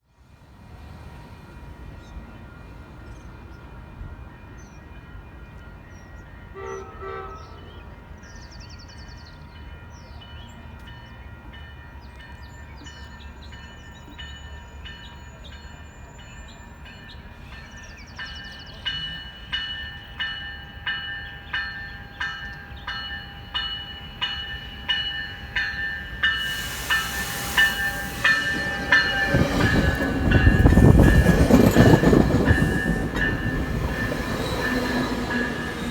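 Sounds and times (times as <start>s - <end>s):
railroad crossing bells ringing: 1.5s - 35.9s
train horn: 6.5s - 8.1s, 26.3s - 32.0s
approaching train rushing: 11.5s - 35.9s.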